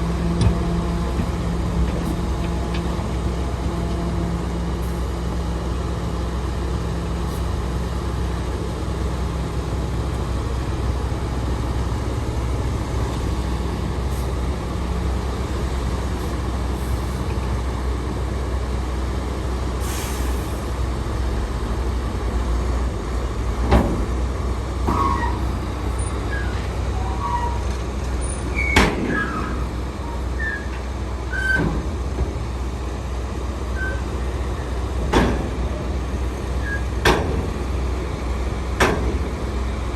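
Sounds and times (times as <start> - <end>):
heavy diesel machinery running: 0.0 - 39.9
hiss of air: 19.8 - 20.7
metallic clanks with squeaks: 24.9 - 31.9, 33.8 - 35.6, 36.6 - 37.4.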